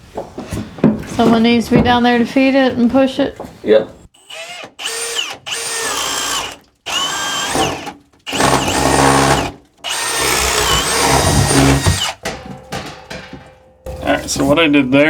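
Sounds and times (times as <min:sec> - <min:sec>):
power drill drilling: 0:04.2 - 0:12.2.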